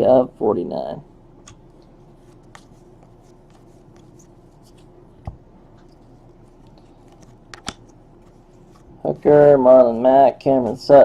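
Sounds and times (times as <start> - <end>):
cards and wrappers rustling: 1.5 - 5.0, 5.8 - 9.5.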